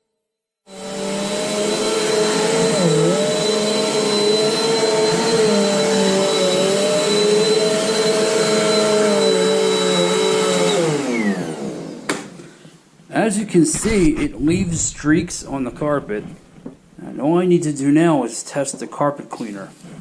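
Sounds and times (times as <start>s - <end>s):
upright vacuum running on carpet: 0.7s - 12.1s.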